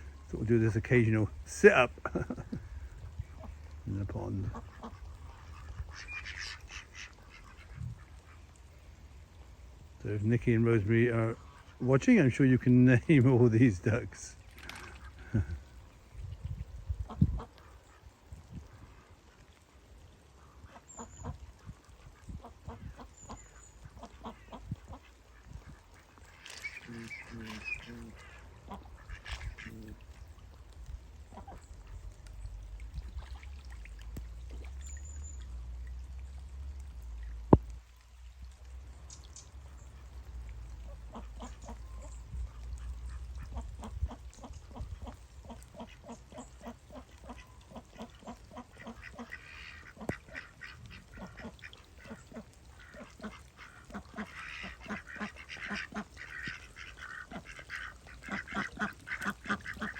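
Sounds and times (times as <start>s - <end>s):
ducks quacking: 0.0s - 8.4s, 20.4s - 30.2s, 40.9s - 59.9s.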